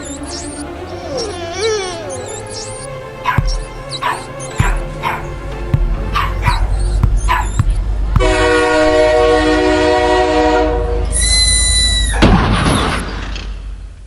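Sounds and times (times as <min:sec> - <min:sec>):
dog yelps: 0:00.0 - 0:05.3, 0:06.1 - 0:07.8
long horn blast: 0:07.9 - 0:11.8.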